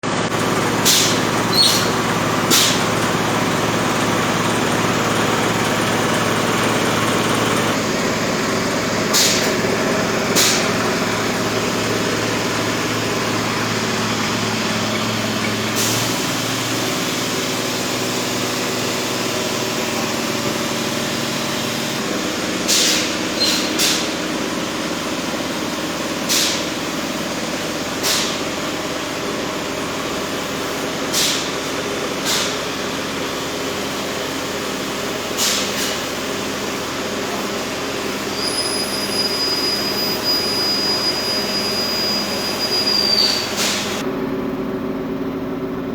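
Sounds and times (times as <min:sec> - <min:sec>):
industrial machinery drone: 0:00.0 - 0:45.9
short bursts of hiss: 0:22.6 - 0:24.2, 0:31.1 - 0:31.6.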